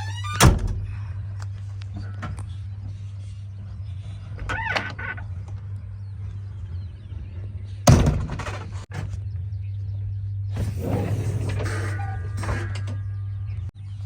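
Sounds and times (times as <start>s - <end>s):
loud thunk: 7.9s - 8.6s
heavy machinery diesel engine: 9.1s - 13.7s.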